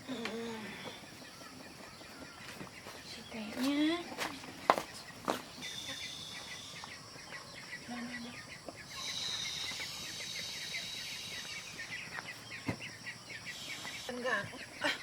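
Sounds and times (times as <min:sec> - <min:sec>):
chickens clucking: 0:00.0 - 0:15.0
high steady hiss: 0:08.8 - 0:12.5, 0:13.3 - 0:14.5.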